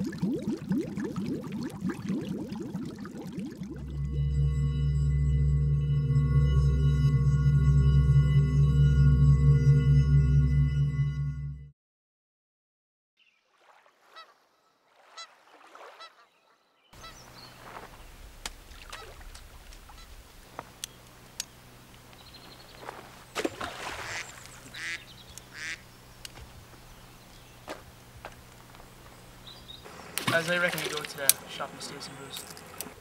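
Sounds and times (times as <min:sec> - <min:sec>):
birds calling: 0:14.0 - 0:33.0
low outdoor rumble: 0:17.0 - 0:23.4, 0:24.2 - 0:33.0.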